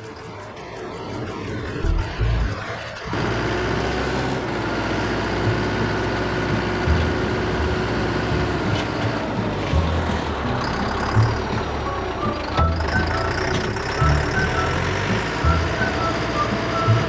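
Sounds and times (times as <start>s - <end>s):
steady whine: 0.0s - 17.0s
tractor diesel engine running: 0.5s - 17.0s.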